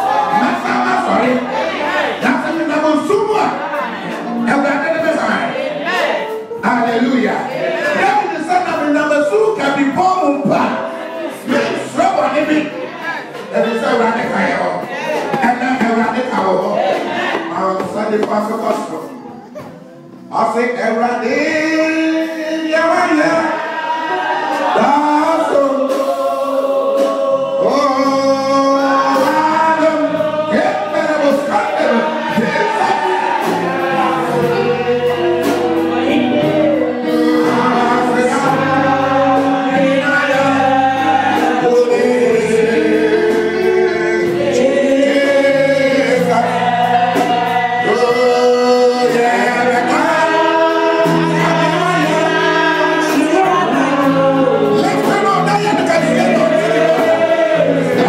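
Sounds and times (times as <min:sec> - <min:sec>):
gospel choir singing: 0:00.0 - 0:58.0
held bass notes: 0:26.9 - 0:58.0.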